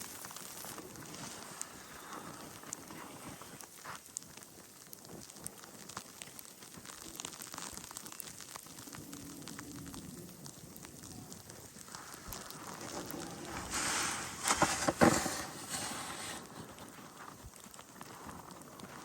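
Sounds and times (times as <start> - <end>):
crunching and scraping in snow: 0.0 - 4.0, 11.6 - 19.0.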